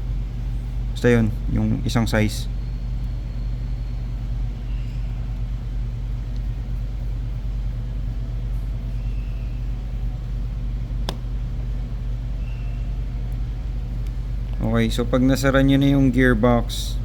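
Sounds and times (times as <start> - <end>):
low droning machinery hum: 0.0 - 17.0
sharp click: 11.0 - 11.2.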